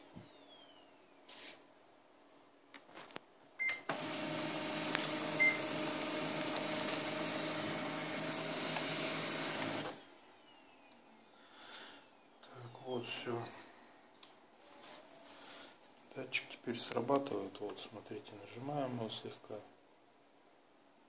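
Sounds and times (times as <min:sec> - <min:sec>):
printer motor whine: 0:03.9 - 0:13.4.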